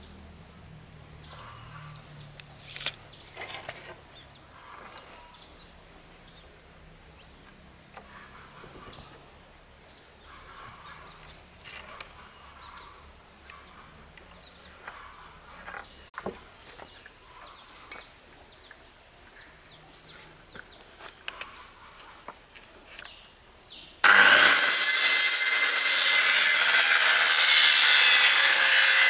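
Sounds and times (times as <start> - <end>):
small birds chirping: 1.1 - 24.0.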